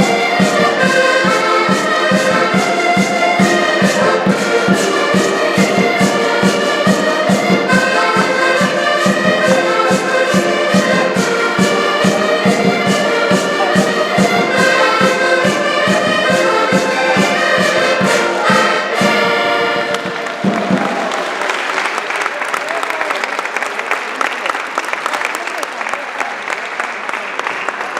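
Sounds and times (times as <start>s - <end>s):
live band music: 0.0s - 21.6s.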